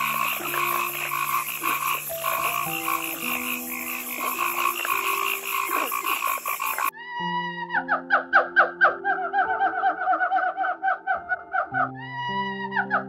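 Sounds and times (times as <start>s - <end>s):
frogs calling: 0.0s - 6.9s
soft background music: 0.0s - 13.0s.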